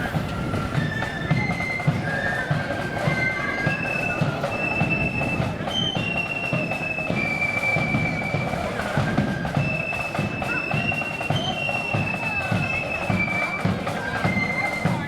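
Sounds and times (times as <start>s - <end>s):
bass and side drums beat: 0.0s - 7.1s
flute melody: 0.0s - 15.0s.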